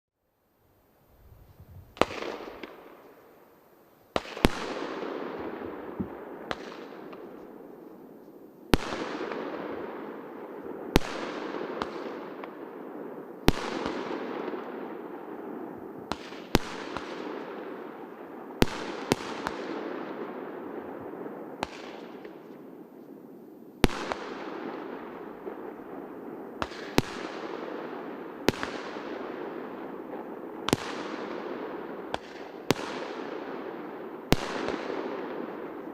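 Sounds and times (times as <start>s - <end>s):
firework bangs: 1.8s - 3.1s, 4.1s - 7.8s, 23.8s - 35.9s.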